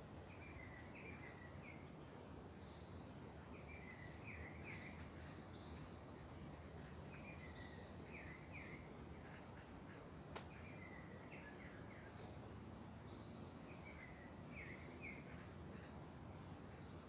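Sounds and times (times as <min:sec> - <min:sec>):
songbird singing: 0:00.0 - 0:17.0
sharp click: 0:10.3 - 0:10.5.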